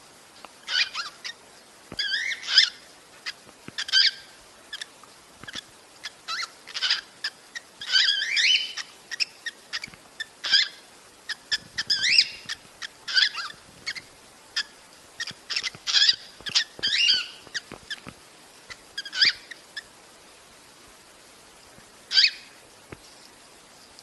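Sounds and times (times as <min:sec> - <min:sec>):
cockatiel chirps and whistles: 0:00.7 - 0:01.1, 0:02.0 - 0:02.8, 0:07.8 - 0:10.8, 0:11.5 - 0:14.0, 0:14.6 - 0:18.0, 0:19.0 - 0:19.6, 0:22.1 - 0:22.4.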